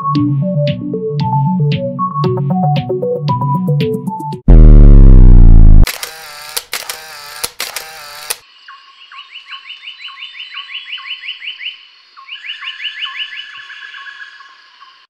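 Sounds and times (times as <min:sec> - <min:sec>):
electronic intro music: 0:04.5 - 0:05.9
bird calls: 0:08.7 - 0:15.0.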